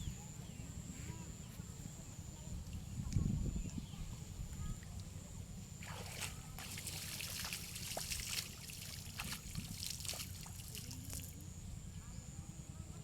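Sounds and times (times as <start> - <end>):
water splashing and trickling: 5.8 - 11.4.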